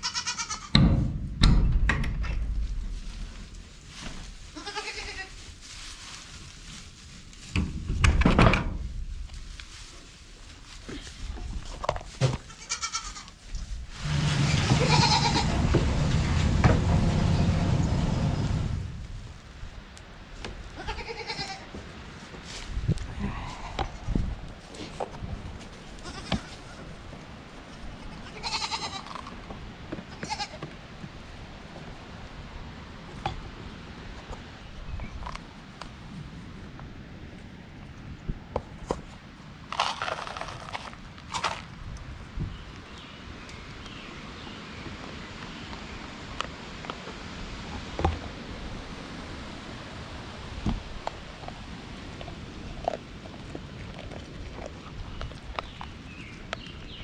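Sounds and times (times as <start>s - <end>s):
farm animal bleating: 0.0s - 0.8s, 4.5s - 5.4s, 12.4s - 13.4s, 14.0s - 18.1s, 20.8s - 21.7s, 26.0s - 26.8s, 28.0s - 29.3s, 30.1s - 30.6s
knocking and rustling: 7.4s - 9.4s, 13.8s - 19.2s.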